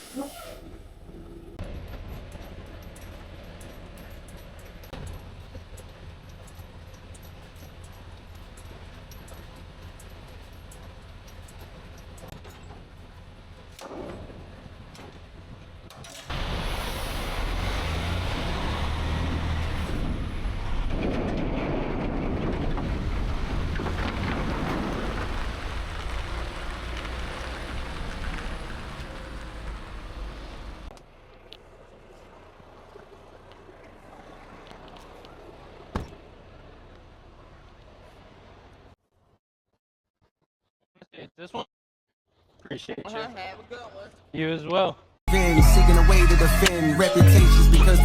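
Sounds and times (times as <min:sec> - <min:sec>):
truck engine and road rumble: 0:00.0 - 0:39.4
rush of road and wind noise: 0:14.4 - 0:30.9.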